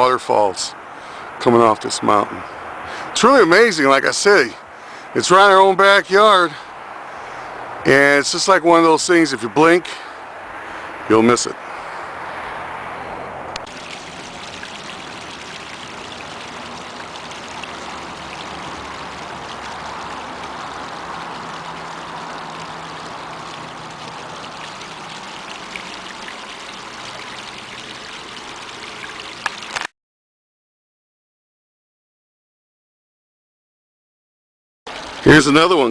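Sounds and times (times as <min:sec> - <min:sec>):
waterfall splashing: 0:13.6 - 0:29.9, 0:34.9 - 0:35.9.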